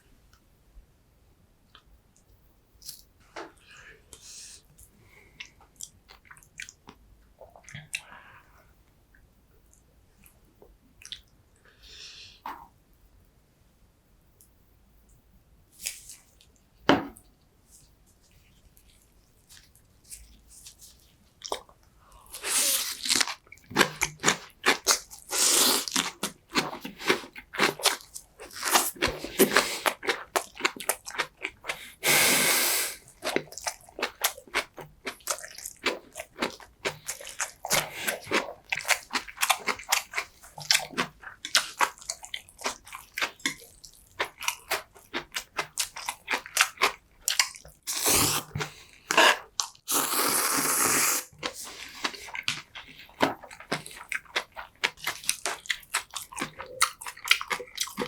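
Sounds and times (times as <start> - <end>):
person chewing and biting: 22.4 - 31.9, 33.0 - 58.0.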